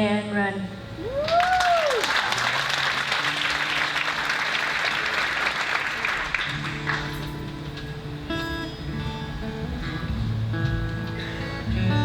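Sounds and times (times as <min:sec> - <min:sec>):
audience applauding: 0:01.2 - 0:07.5
acoustic guitar sustained notes: 0:02.4 - 0:12.0.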